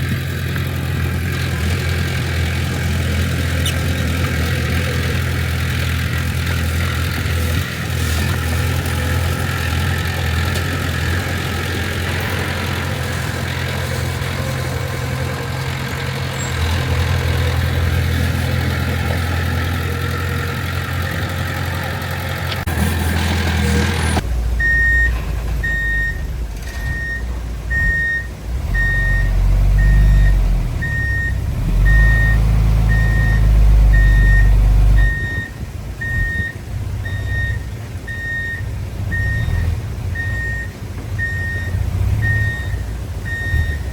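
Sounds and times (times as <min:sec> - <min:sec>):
heavy diesel engine running: 0:00.0 - 0:43.9
reversing alarm beeping: 0:24.1 - 0:43.9.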